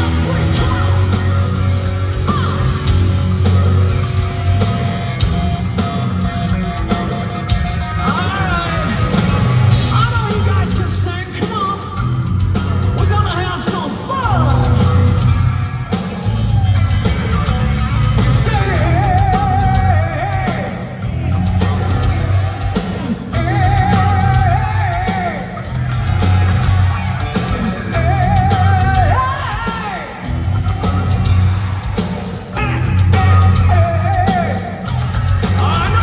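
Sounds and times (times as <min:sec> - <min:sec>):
hard rock band playing live: 0:00.0 - 0:36.0
person singing: 0:18.2 - 0:21.9, 0:22.8 - 0:25.7, 0:27.3 - 0:30.3, 0:32.5 - 0:36.0.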